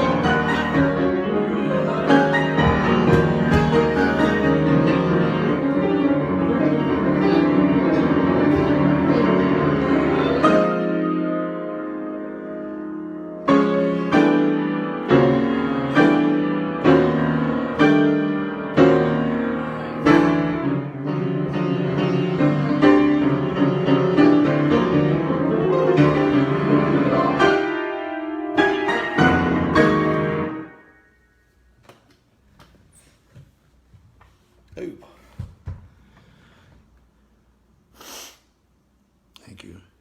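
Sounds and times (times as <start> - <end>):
piano chords: 0.0 - 31.8.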